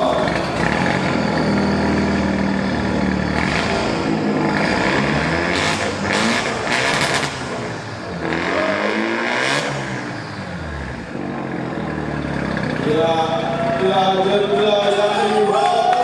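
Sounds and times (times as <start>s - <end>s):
car engine revving: 0.0s - 15.7s.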